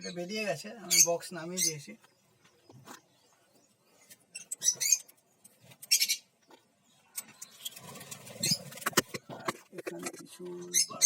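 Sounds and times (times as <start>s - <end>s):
parrots chirping: 0.8s - 2.0s, 4.0s - 6.4s, 7.3s - 9.1s, 10.5s - 11.0s.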